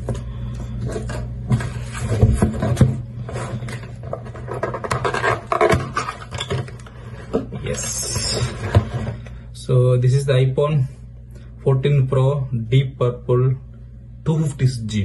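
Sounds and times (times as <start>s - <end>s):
packaging scraping and rustling: 0.8s - 9.3s.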